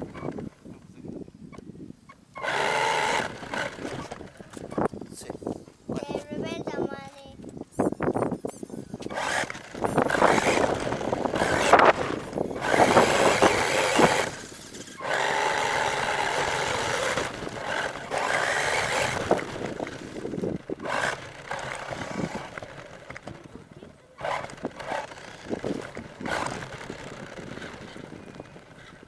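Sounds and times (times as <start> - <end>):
toy monster truck motor: 2.4 - 4.8, 8.9 - 29.0.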